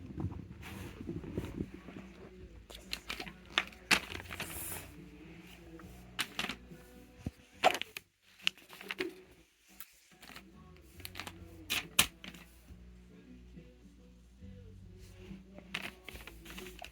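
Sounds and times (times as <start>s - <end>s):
brief rustle: 15.6s - 16.9s.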